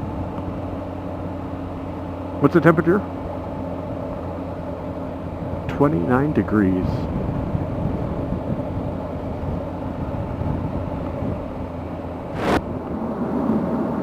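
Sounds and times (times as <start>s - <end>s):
motorcycle engine hum: 0.0s - 13.8s
wind noise on microphone: 6.9s - 14.0s
loud rush of noise: 12.3s - 12.8s.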